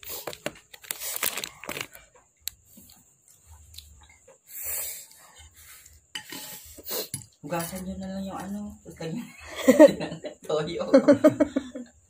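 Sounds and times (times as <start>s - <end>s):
small clicks and crinkles: 0.0s - 4.3s.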